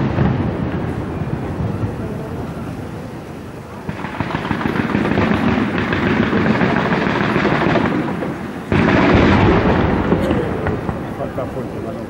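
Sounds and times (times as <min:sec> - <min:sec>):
deep firework booms: 0:00.0 - 0:03.1, 0:03.8 - 0:12.0
fireworks crackling pops and bangs: 0:00.0 - 0:12.0.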